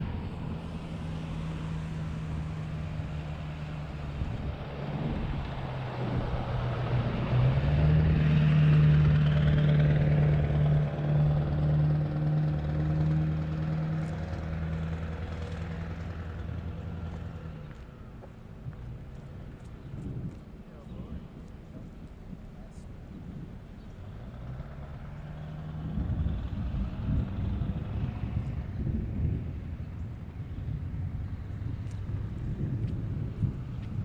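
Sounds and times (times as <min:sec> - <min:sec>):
road noise: 0:00.0 - 0:34.0
vehicle engine running: 0:00.0 - 0:34.0.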